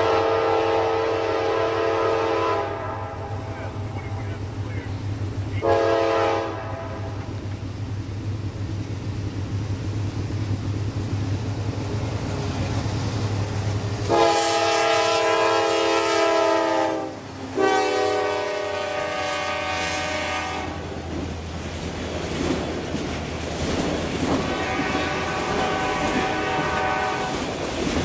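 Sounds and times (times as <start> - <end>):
train air horn blasts: 0.0 - 4.4, 5.6 - 7.3, 14.1 - 20.9, 24.4 - 27.6
diesel locomotive rumble: 0.0 - 28.0
wheels clattering over rail joints: 21.0 - 28.0.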